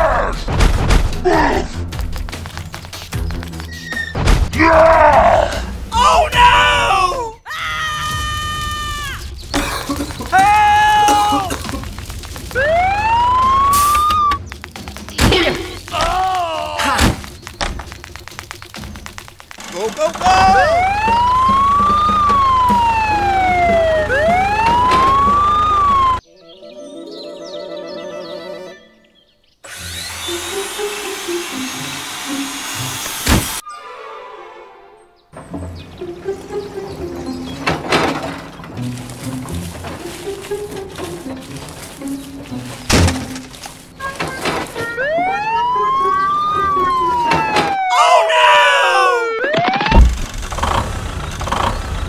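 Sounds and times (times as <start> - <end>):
ambulance siren wailing: 12.5 - 14.4, 19.8 - 26.2, 44.8 - 50.2.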